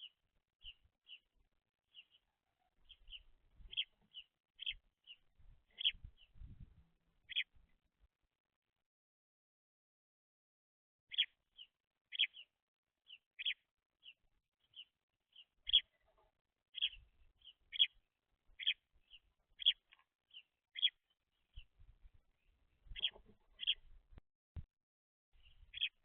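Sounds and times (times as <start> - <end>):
young sparrows chirping: 0.0 - 6.6, 7.2 - 7.7, 11.1 - 24.0, 25.4 - 26.0.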